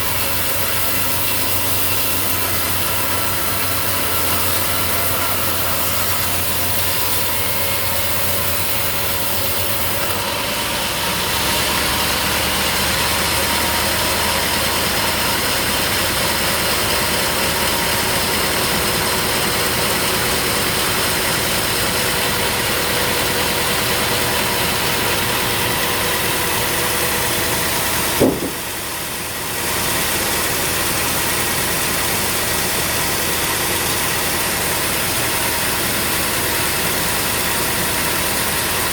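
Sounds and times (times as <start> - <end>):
engine idling: 0.0 - 38.9
sharp knock: 28.2 - 28.8.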